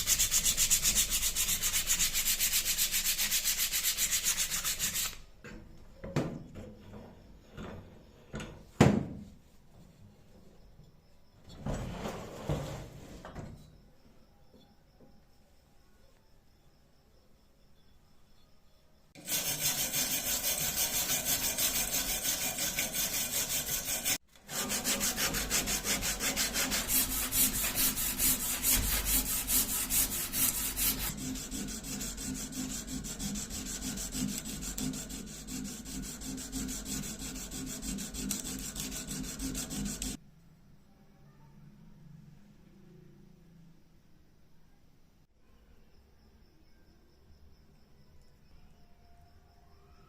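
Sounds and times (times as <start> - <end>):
hand tool scraping metal: 19.2 - 40.2.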